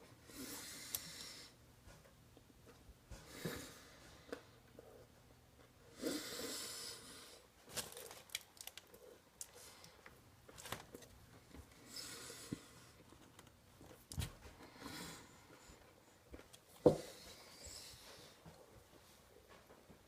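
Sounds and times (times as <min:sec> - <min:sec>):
heavy breath through nose: 0:14.4 - 0:15.8.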